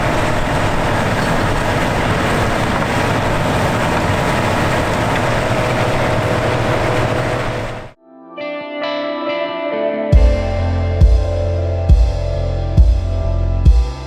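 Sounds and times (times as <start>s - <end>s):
farm machinery rumbling and rattling: 0.0s - 8.0s.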